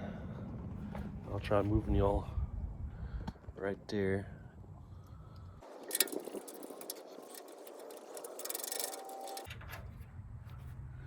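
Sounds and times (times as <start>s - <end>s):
light ticks and rattles: 5.3s - 10.0s
sharp clicks: 5.6s - 9.5s.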